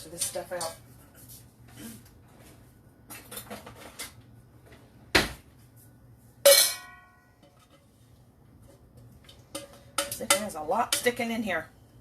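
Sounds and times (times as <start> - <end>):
kitchen utensils rattling and scraping: 0.0 - 0.9, 3.1 - 4.2, 8.6 - 11.6
metallic clang of kitchenware: 6.4 - 7.7.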